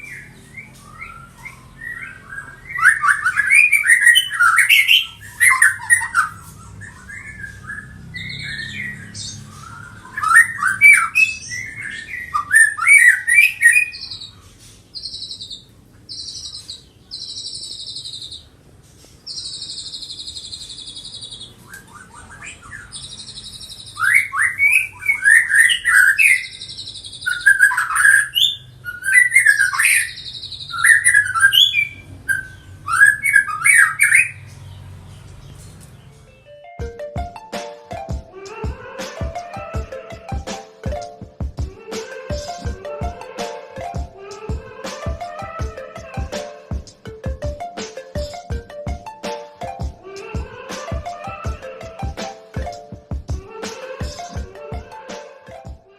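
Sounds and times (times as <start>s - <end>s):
bird high whistled notes: 0.0s - 14.4s, 19.3s - 34.5s
bird chirping phrases: 0.0s - 36.8s, 37.5s - 55.8s.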